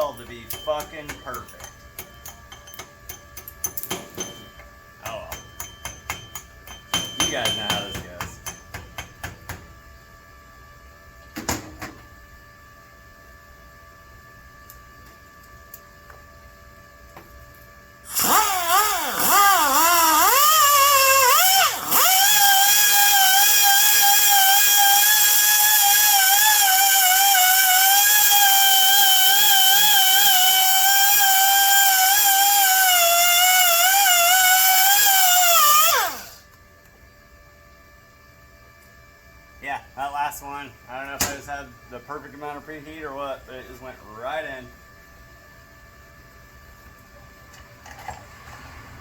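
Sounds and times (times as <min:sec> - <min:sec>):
electric grinder cutting metal: 0:18.1 - 0:36.4.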